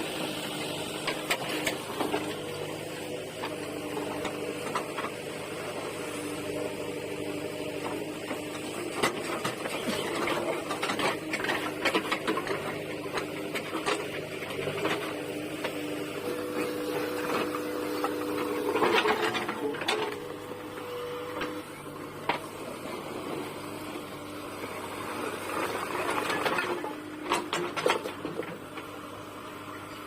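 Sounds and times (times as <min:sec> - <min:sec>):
diesel engine and hydraulics running: 0:00.0 - 0:30.0.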